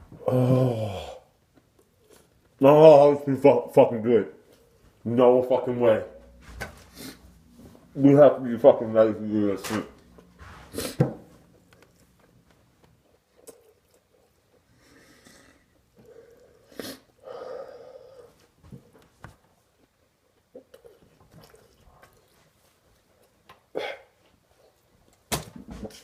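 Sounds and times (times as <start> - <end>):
person chewing food: 10.1 - 17.2, 19.8 - 25.3.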